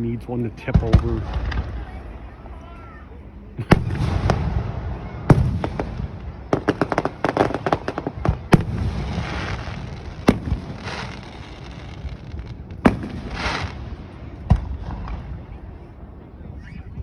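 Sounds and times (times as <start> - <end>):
fireworks bangs: 3.6 - 15.6
fireworks crackling hiss: 3.7 - 15.2
fireworks sharp pops: 5.3 - 15.3.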